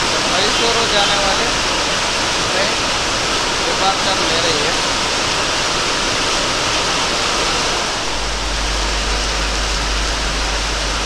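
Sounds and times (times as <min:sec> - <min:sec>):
heavy rain pouring: 0:00.0 - 0:11.0
steady low rumble: 0:06.5 - 0:11.0.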